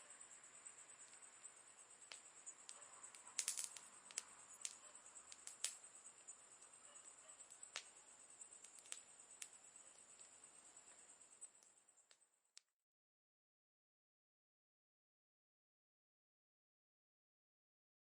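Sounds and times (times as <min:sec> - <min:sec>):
campfire crackling: 0:00.0 - 0:12.2
high-pitched hiss: 0:00.0 - 0:12.6.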